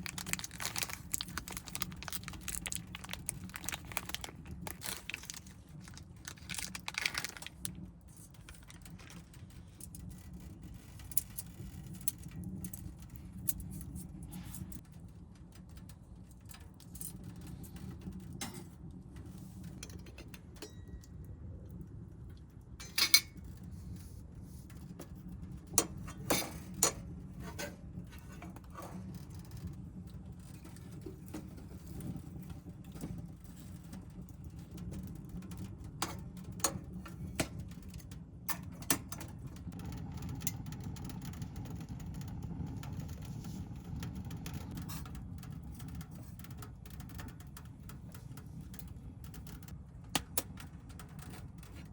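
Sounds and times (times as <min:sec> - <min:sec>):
low steady rumble: 0:00.0 - 0:51.9
metal cookware clinking: 0:22.8 - 0:23.4.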